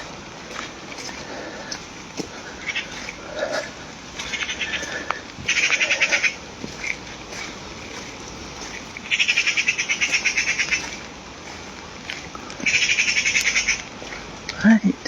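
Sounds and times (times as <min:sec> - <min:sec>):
rain hiss: 0:00.0 - 0:15.0
songbird trilling: 0:04.2 - 0:06.4, 0:08.5 - 0:11.0, 0:12.6 - 0:13.9.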